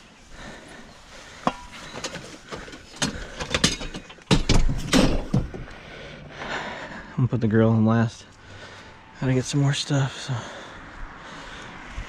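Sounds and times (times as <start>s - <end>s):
household junk knocking and clattering: 1.4s - 5.8s
banging and rattling: 1.4s - 6.0s.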